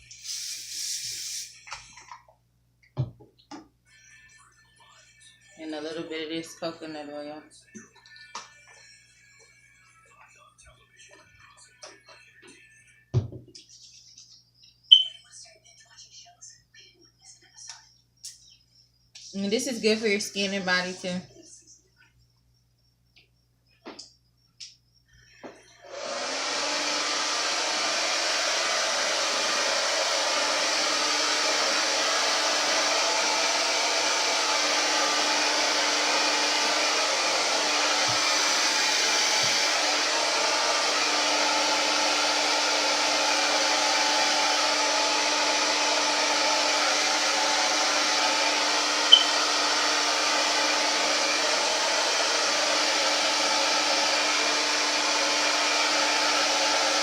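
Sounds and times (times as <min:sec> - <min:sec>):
blow dryer running: 0:25.8 - 0:57.0.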